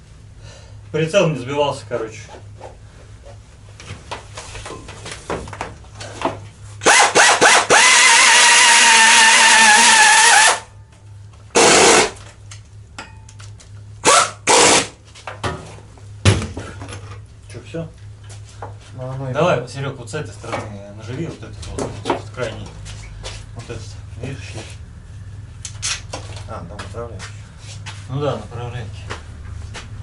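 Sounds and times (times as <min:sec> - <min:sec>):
power tool whining: 0:06.8 - 0:10.7, 0:11.6 - 0:12.2, 0:14.0 - 0:14.9.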